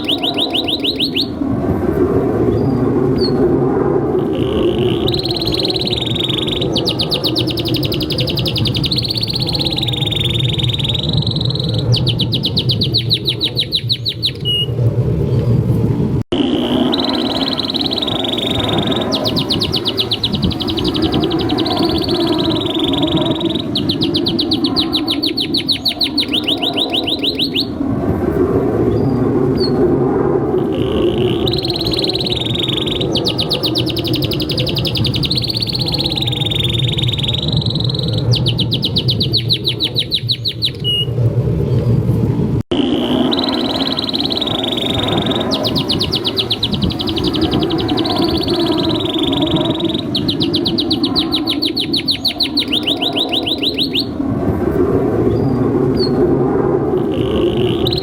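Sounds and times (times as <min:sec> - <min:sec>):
canary singing trills: 0:00.0 - 0:01.4, 0:04.2 - 0:14.7, 0:16.3 - 0:27.8, 0:30.7 - 0:41.1, 0:42.7 - 0:54.2, 0:57.0 - 0:58.0.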